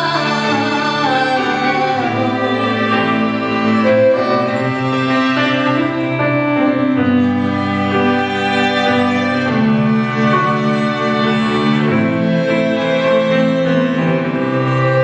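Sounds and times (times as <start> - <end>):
piano: 0.0 - 15.0
string quartet bowed notes: 0.0 - 15.0.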